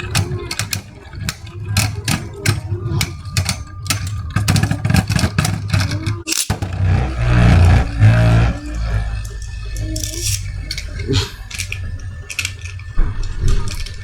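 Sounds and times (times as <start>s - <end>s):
low steady hum: 0.0s - 14.0s
spinning tops clashing: 0.0s - 14.0s.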